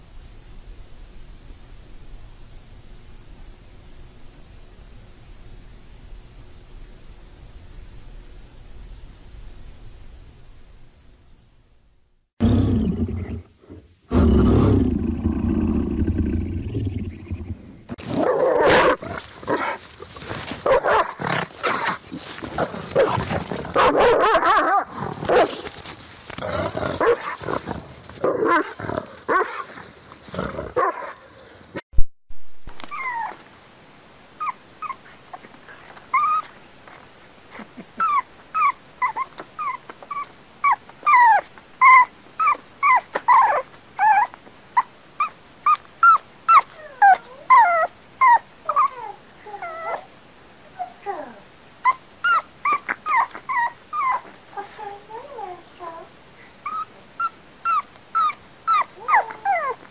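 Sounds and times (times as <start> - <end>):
dense rough animal sound: 12.4 - 23.7
dog whimpering high yips: 32.8 - 33.4, 36.1 - 36.5, 38.0 - 50.1, 51.8 - 54.3, 56.6 - 59.8.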